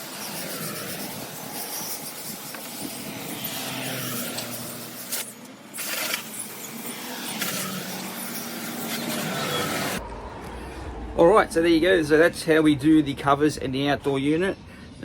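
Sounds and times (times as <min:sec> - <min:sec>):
water spraying from hose nozzle: 0:00.0 - 0:10.0.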